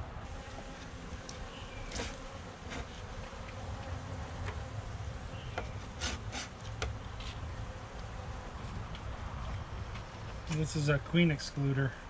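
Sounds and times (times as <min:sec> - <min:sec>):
honeybees buzzing: 0:00.2 - 0:11.8.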